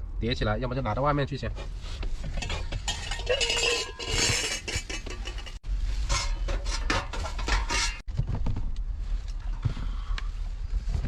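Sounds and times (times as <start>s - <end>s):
metal items clattering: 2.3s - 8.1s.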